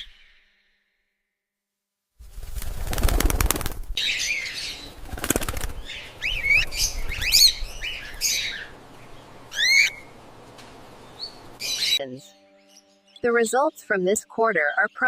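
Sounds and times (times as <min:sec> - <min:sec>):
wings flapping: 0:02.2 - 0:04.0, 0:04.8 - 0:08.0
cockatiels chirping: 0:05.8 - 0:08.8, 0:09.5 - 0:10.1.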